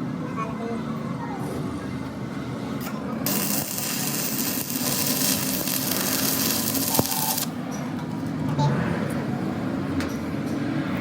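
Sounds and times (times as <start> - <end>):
steady hiss: 3.3 - 7.5.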